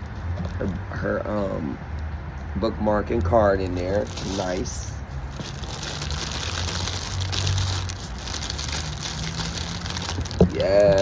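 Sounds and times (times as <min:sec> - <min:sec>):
paper and wrapping rustling: 0:03.7 - 0:11.0.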